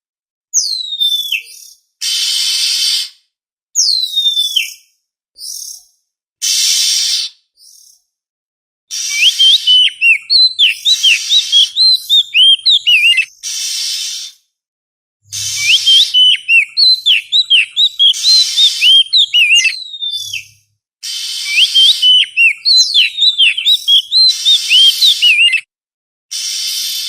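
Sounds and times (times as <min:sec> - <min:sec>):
bird whistling song: 0:00.6 - 0:03.1, 0:03.8 - 0:05.8, 0:08.9 - 0:14.4, 0:15.3 - 0:25.7
bird harsh rasping: 0:02.0 - 0:03.1, 0:06.4 - 0:07.3, 0:08.9 - 0:14.4, 0:15.3 - 0:20.4, 0:21.0 - 0:25.6, 0:26.3 - 0:27.0.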